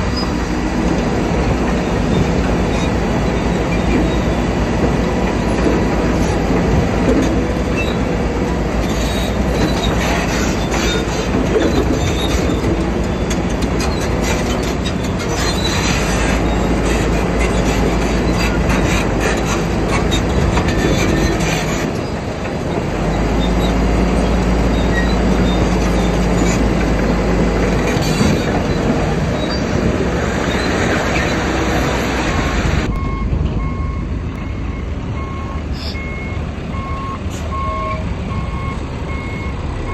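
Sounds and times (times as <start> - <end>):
bulldozer engine under load: 0.0 - 39.9
steel tracks squealing and clanking: 0.0 - 39.9
reversing beeper beeping: 32.9 - 39.9.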